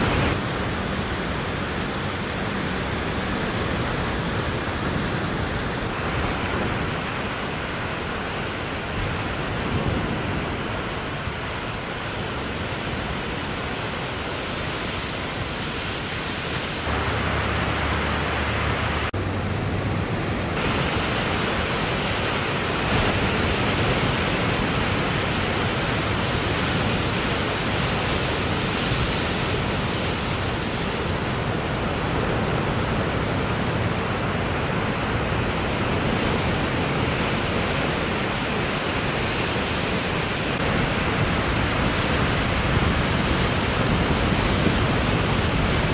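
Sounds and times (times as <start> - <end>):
ocean surf breaking: 0.0 - 45.9.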